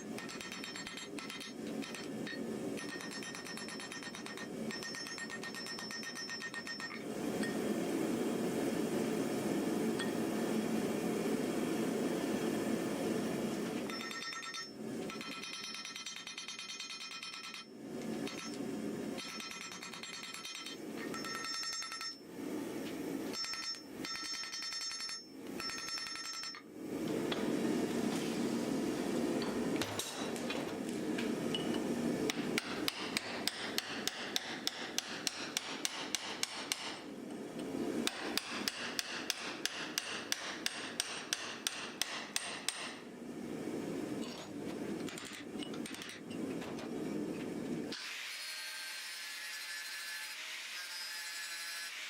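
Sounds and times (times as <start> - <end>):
hammer striking metal: 0.0 - 7.0, 32.3 - 37.0, 38.0 - 43.0.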